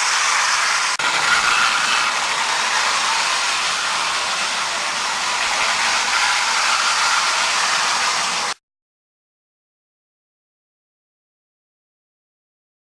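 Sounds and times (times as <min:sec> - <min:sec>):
model train whirring: 0:00.0 - 0:08.6.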